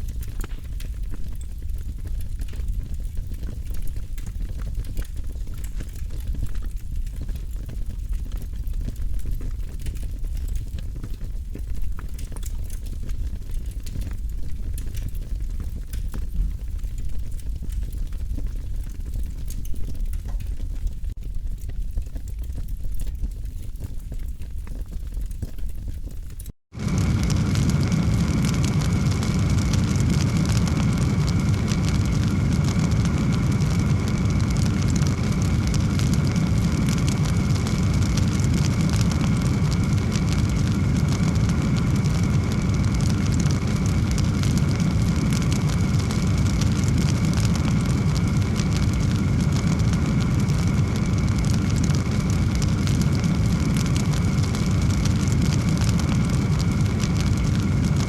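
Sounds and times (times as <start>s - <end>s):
wood fire roaring: 0.0s - 58.0s
fine crackling: 26.7s - 58.0s.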